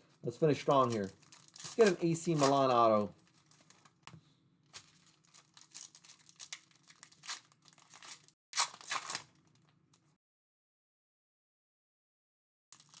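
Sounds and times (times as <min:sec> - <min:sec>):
card pack wrappers crinkling and tearing: 0:00.0 - 0:09.7, 0:12.8 - 0:13.0.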